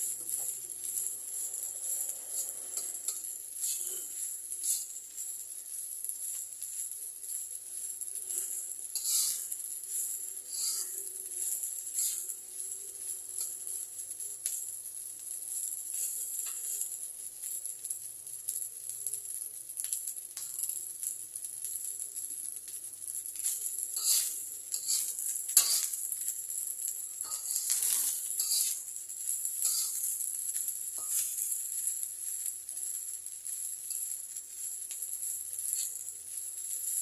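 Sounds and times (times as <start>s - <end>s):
spatula scraping and knocking pan: 0.0s - 5.4s, 8.3s - 12.4s, 23.4s - 26.0s, 27.2s - 32.4s
rice sizzling in a pan: 0.0s - 37.0s.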